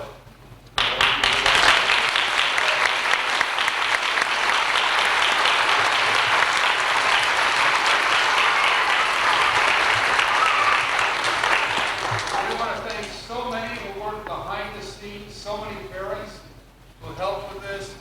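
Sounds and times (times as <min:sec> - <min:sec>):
audience applauding: 0:00.8 - 0:14.0.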